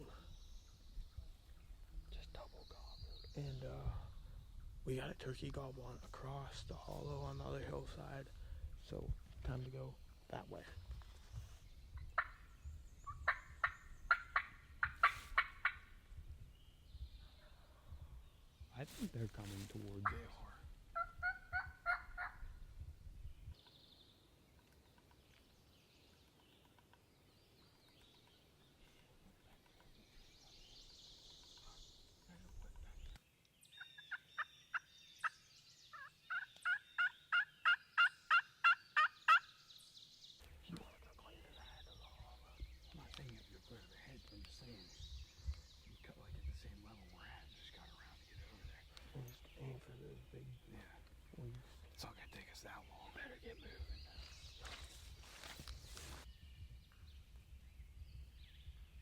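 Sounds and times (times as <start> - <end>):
wild turkey calling: 9.8 - 16.2, 18.8 - 22.7, 26.0 - 46.3
turkey yelping: 12.2 - 12.4, 13.2 - 15.8, 21.0 - 22.4, 35.9 - 39.5.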